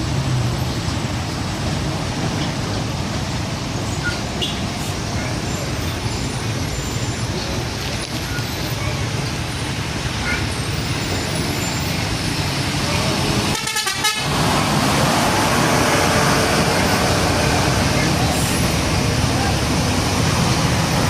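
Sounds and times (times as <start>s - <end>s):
heavy road traffic roar: 0.0s - 21.0s.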